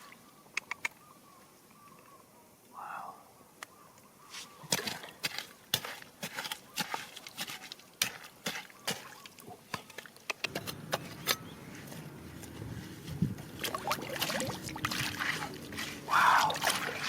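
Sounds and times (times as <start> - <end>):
water sloshing: 4.7 - 17.0.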